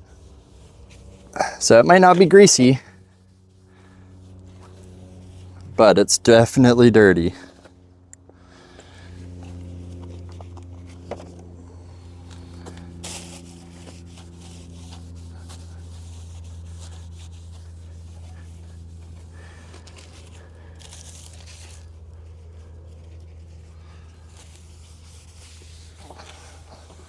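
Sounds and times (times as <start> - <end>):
steady low hum: 0.0 - 27.0
rag rubbing and crinkling: 12.6 - 22.0, 22.7 - 27.0.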